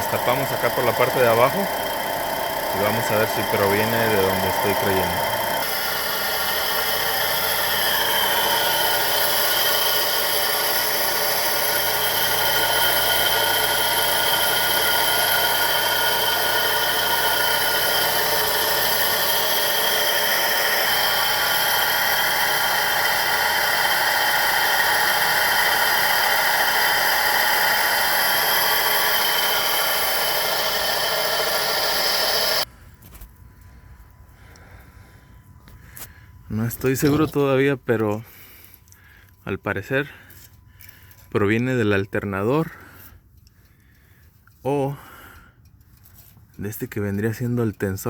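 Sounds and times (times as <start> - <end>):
man talking: 0.0 - 1.8, 2.7 - 5.4, 36.5 - 38.3, 39.4 - 40.2, 41.3 - 42.8, 44.6 - 45.0, 46.6 - 48.0
car engine running: 0.0 - 32.7
high belt whine: 0.0 - 42.8.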